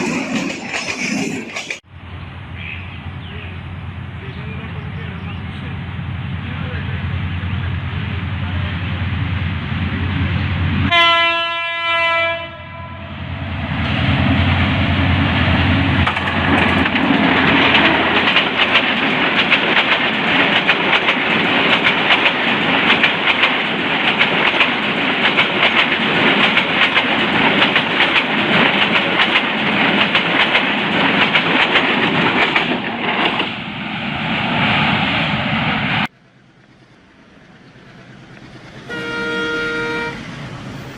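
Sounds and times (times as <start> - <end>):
train rumbling: 0.0 - 40.9
locomotive horn: 10.8 - 13.3, 38.8 - 40.3
train wheels clattering on rails: 15.3 - 33.6.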